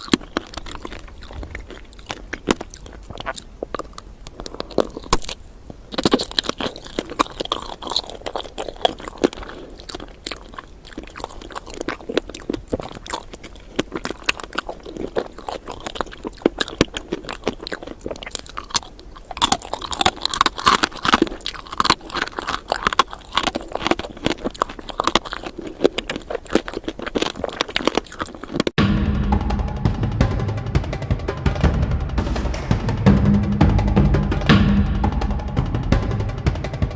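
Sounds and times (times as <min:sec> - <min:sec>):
crunchy chewing: 0:00.0 - 0:28.8.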